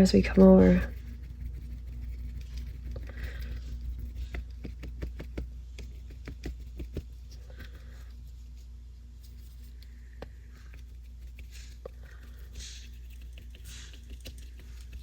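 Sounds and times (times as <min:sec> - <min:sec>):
low steady hum: 0:00.0 - 0:15.0
paintbrush tapping on paper: 0:03.0 - 0:07.8.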